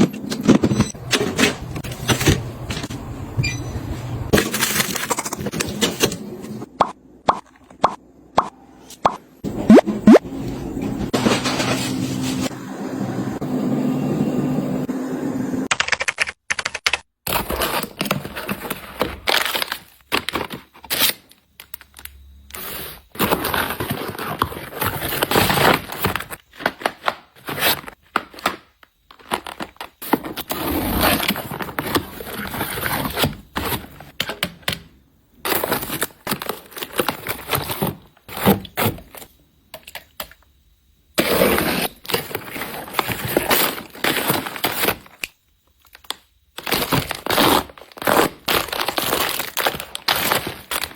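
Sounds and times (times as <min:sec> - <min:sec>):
plastic wrappers crinkling: 0:17.3 - 0:22.2, 0:42.0 - 0:50.9
packaging tearing: 0:45.9 - 0:50.9.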